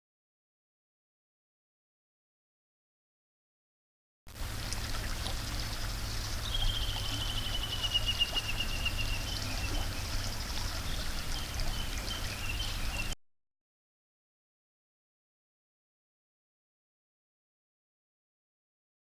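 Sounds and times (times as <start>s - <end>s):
river water flowing: 4.3s - 13.2s
short bird calls: 5.7s - 13.2s
bird trilling: 6.0s - 13.2s.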